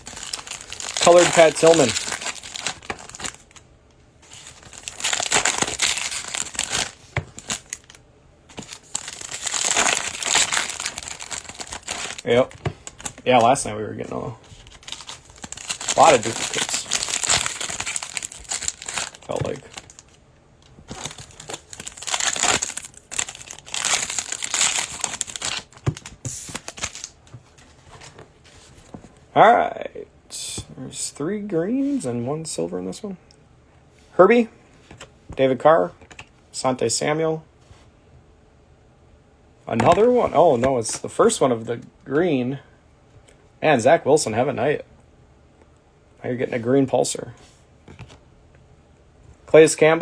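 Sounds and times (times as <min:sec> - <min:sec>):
plastic wrappers crinkling and tearing: 0:00.0 - 0:03.6, 0:04.3 - 0:13.7, 0:14.4 - 0:20.2, 0:20.8 - 0:27.2.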